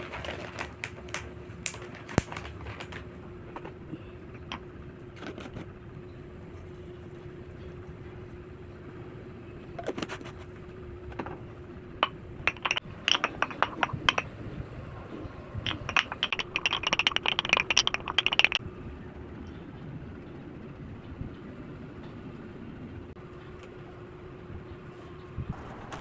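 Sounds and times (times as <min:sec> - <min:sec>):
small hard objects clicking together: 0:00.0 - 0:03.1, 0:12.0 - 0:14.3, 0:15.6 - 0:18.6
faint steady hum: 0:00.0 - 0:26.0.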